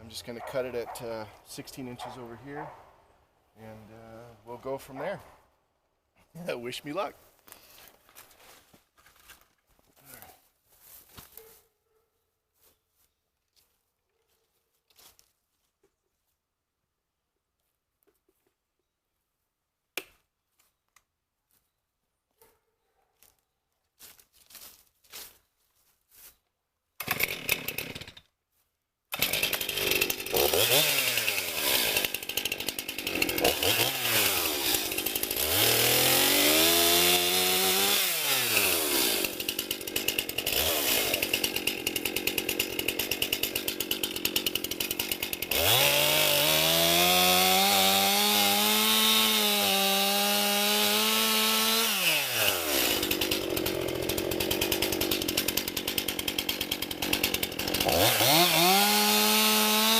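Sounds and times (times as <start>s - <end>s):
chainsaw starting and revving: 27.0s - 28.3s, 29.1s - 59.9s.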